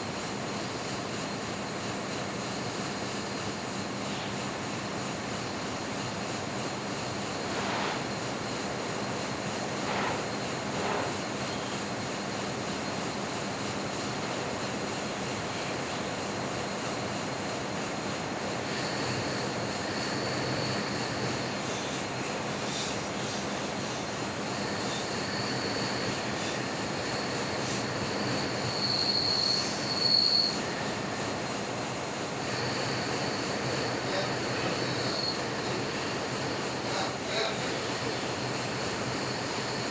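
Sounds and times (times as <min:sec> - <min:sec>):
metal lathe humming: 0:18.2 - 0:30.0
high-pitched tool squeal on metal: 0:28.7 - 0:30.6.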